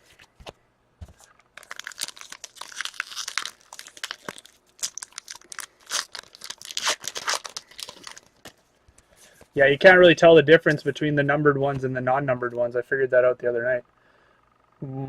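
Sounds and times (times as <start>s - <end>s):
foil wrapper crinkling and tearing: 1.5s - 8.5s.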